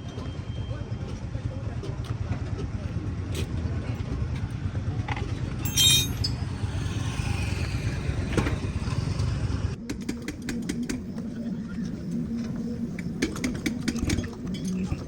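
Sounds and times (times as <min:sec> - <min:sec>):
vehicle engine rumble: 0:00.8 - 0:09.8.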